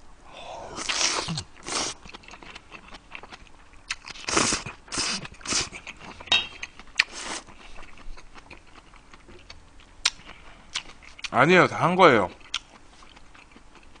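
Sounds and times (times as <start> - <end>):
breathing: 0.3 - 0.8
man chewing food: 0.8 - 11.3, 12.3 - 14.0.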